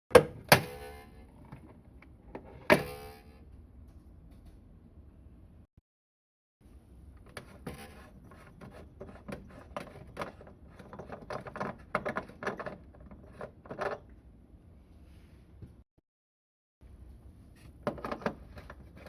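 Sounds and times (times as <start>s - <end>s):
hard plastic clicking and scraping: 7.2s - 14.1s.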